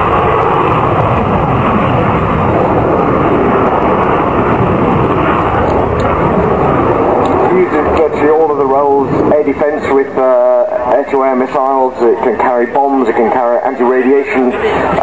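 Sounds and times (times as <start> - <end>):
fighter jet engine roar: 0.0 - 15.0.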